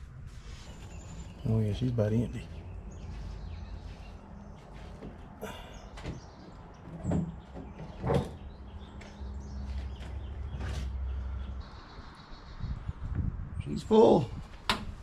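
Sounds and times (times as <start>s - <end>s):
clunks and knocks: 5.0s - 9.2s.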